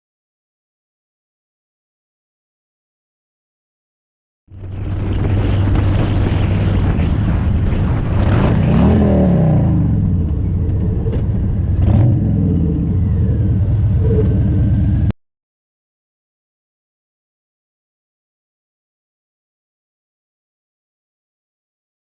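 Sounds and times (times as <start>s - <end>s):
car engine and road rumble: 4.5s - 15.1s.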